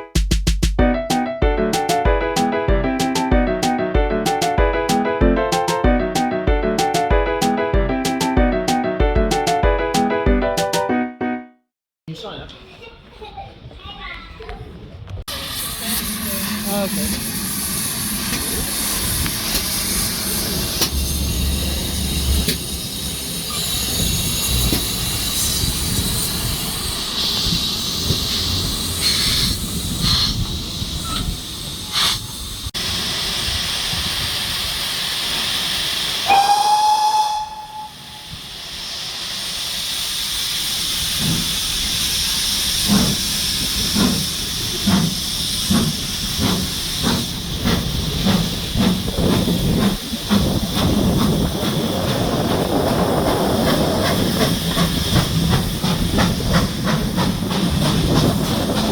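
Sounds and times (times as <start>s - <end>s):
locomotive exhaust chuffing: 15.0s - 58.9s
steam locomotive hissing: 15.3s - 58.9s
locomotive whistle blast: 36.2s - 38.5s.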